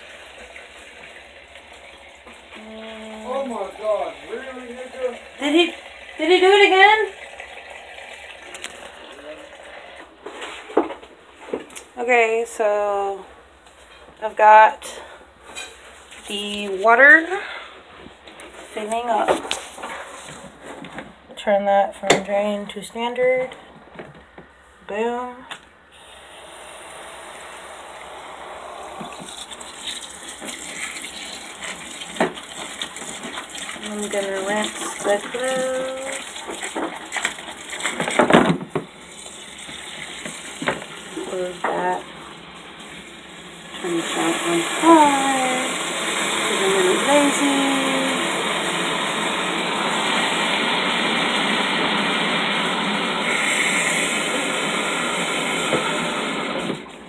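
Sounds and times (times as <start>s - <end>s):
shower spray pouring into tub: 0.0s - 9.9s, 26.0s - 42.0s, 42.9s - 49.3s
water sloshing in washing machine: 0.0s - 11.0s, 26.2s - 50.5s.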